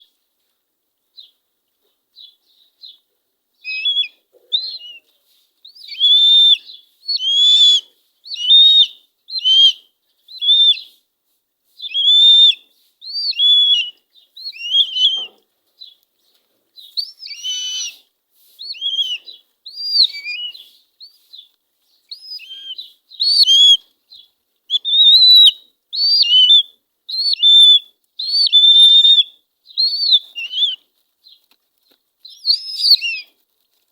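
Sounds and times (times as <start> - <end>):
eagle chicks begging calls: 13.2 - 15.3, 17.0 - 18.0, 18.7 - 20.8, 22.1 - 23.8, 24.7 - 30.8, 32.3 - 33.3.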